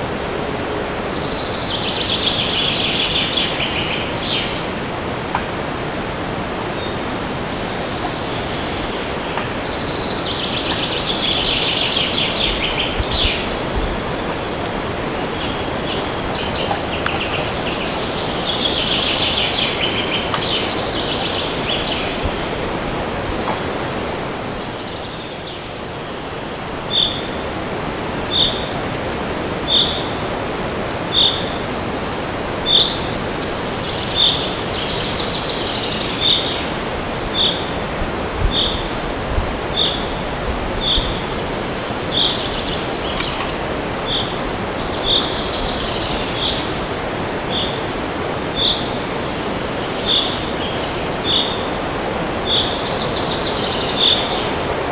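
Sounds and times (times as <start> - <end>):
wind through forest: 0.0 - 54.9
songbird trilling: 26.5 - 27.7, 28.3 - 28.8, 29.6 - 30.3, 31.1 - 37.8, 38.5 - 41.2, 42.1 - 47.9.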